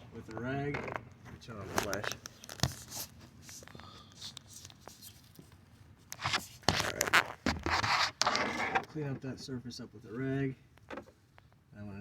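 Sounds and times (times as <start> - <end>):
rag rubbing metal surface: 7.6 - 8.9.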